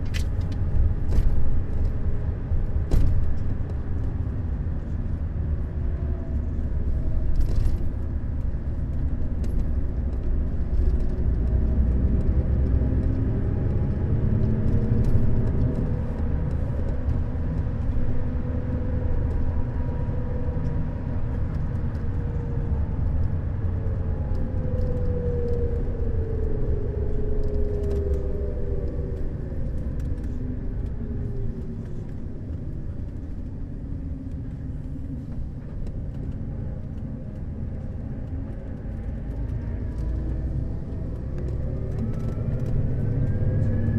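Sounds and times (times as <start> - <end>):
coach engine rumble and whine: 0.0 - 43.9.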